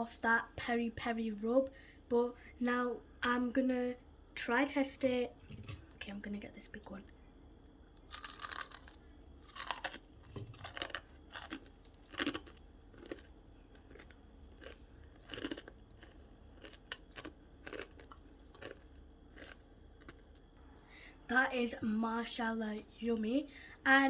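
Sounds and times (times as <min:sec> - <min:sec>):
crisp chewing crunches: 0:08.0 - 0:20.6.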